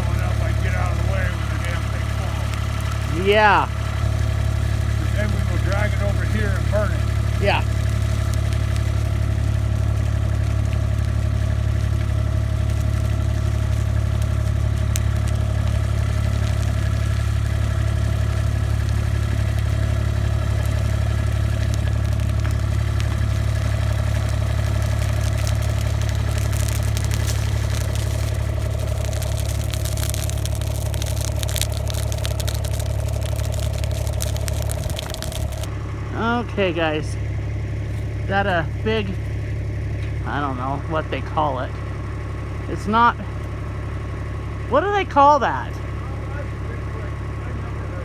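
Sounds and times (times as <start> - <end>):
vehicle engine rumbling: 0.0 - 48.0.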